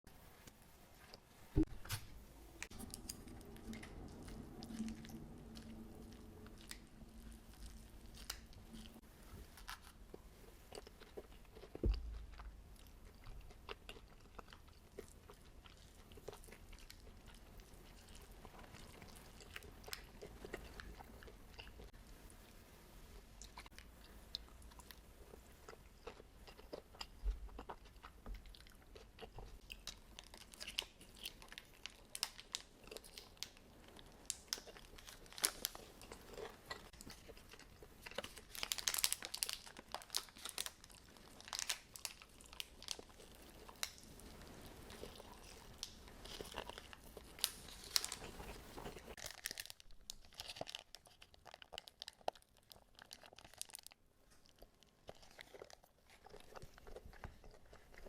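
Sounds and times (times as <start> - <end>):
person chewing with crunches: 2.6 - 22.0, 23.4 - 58.0.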